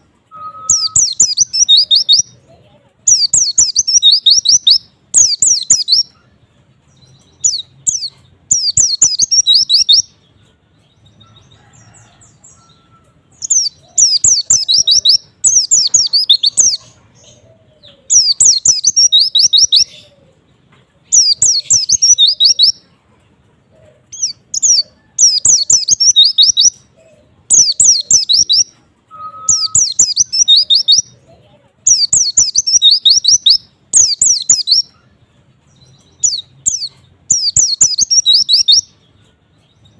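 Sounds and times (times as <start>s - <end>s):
bird twittering song: 0.0s - 2.5s, 3.1s - 23.0s, 24.0s - 39.9s.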